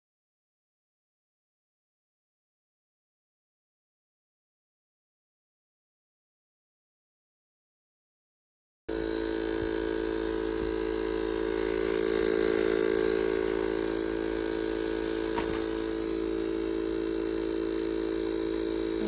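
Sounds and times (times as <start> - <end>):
steady machine hum: 8.9 - 19.0.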